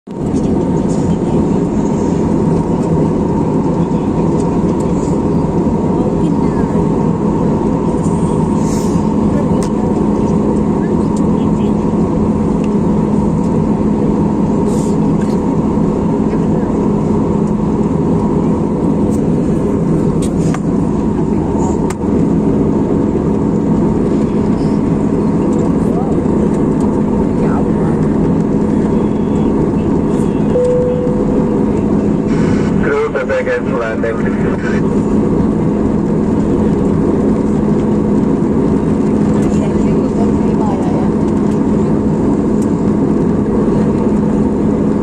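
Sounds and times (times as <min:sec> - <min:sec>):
airliner cabin engine drone: 0:00.1 - 0:45.0
thin steady whine: 0:27.0 - 0:37.3
faint steady tone: 0:30.5 - 0:31.7.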